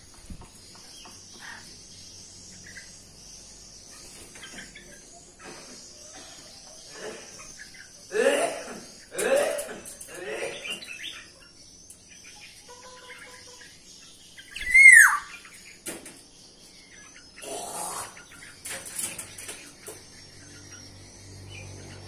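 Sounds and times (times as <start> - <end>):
birds chirping and calling: 0.0 - 22.0
downward-sliding bird call: 14.6 - 15.3.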